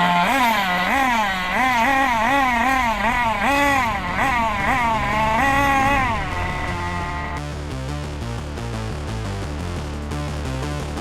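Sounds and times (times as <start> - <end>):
small nitro engine revving: 0.0 - 7.5.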